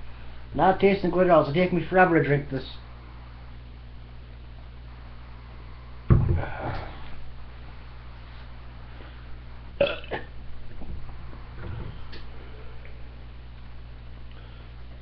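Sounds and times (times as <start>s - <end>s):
man burping: 9.8s - 10.3s.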